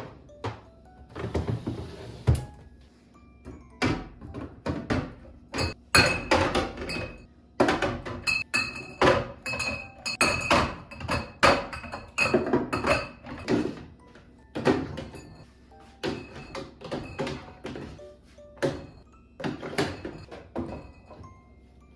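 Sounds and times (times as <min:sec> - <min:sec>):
kitchenware clinking and knocking: 0:03.5 - 0:14.0, 0:14.6 - 0:15.4, 0:16.0 - 0:21.3.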